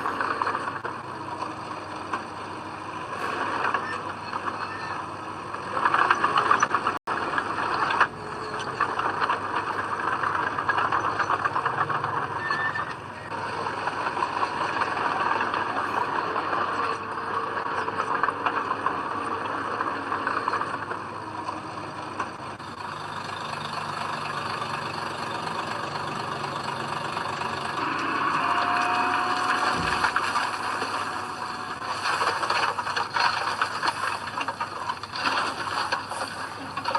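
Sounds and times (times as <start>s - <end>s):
diesel engine of heavy machinery: 0.0s - 36.9s.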